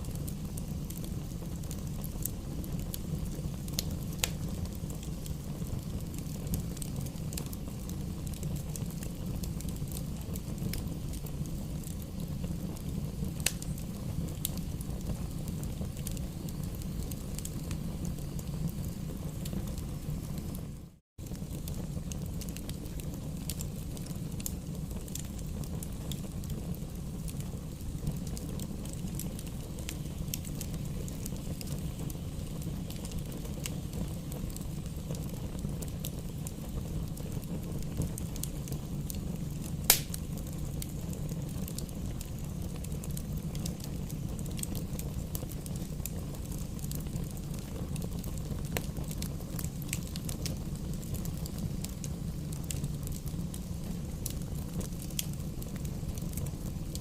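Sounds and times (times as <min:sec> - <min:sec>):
burning logs crackling: 0:00.0 - 0:57.0
fire flames rumbling: 0:00.0 - 0:57.0
loud pop of fire: 0:39.6 - 0:41.3.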